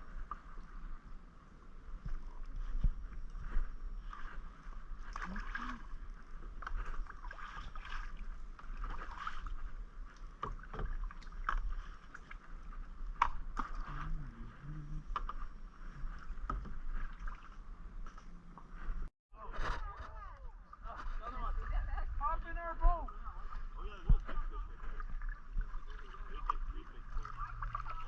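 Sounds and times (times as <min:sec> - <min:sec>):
paddle splashes and drips: 0:00.0 - 0:18.7, 0:22.9 - 0:28.0.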